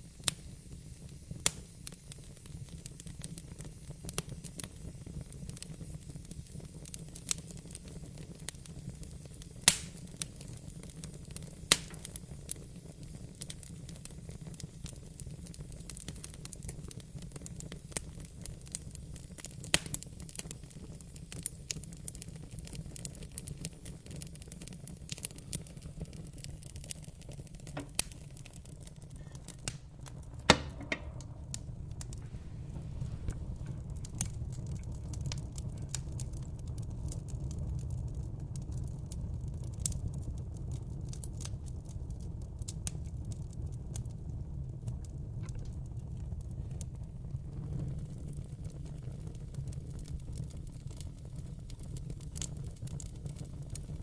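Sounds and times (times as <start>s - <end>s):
fireplace fire crackling: 0.0s - 54.0s
sharp loud fire pops: 9.7s - 10.0s, 27.6s - 28.2s, 29.4s - 36.0s.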